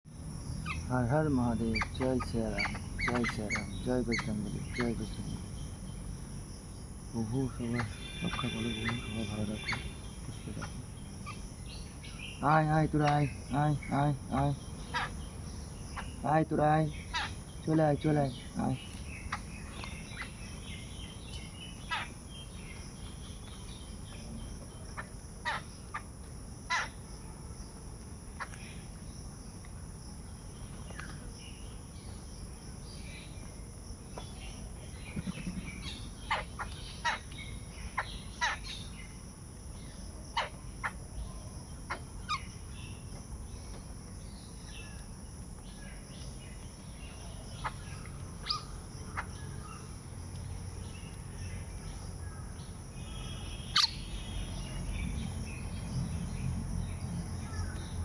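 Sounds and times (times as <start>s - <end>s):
bird calls: 0.6s - 6.1s, 7.1s - 27.1s, 28.3s - 29.6s, 30.3s - 39.2s, 39.8s - 58.0s
high-pitched insect buzzing: 7.1s - 12.6s.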